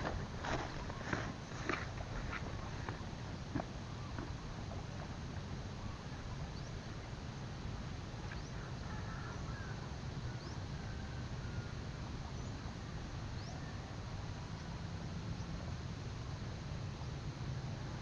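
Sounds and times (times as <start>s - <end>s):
steady low rumble: 0.0s - 6.6s.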